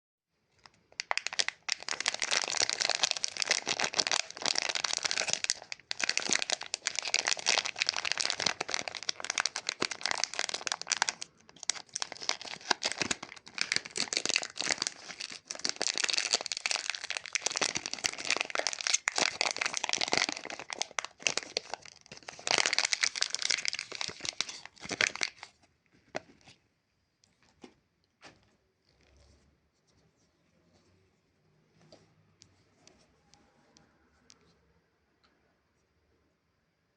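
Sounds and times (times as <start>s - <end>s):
plastic wrapper crinkling: 0.5s - 26.6s.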